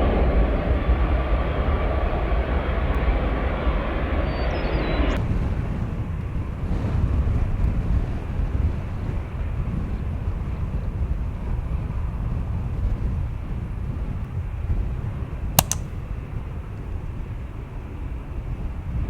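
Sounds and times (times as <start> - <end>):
wind rumbling on microphone: 5.2 - 19.0
sharp clicks: 15.6 - 16.0.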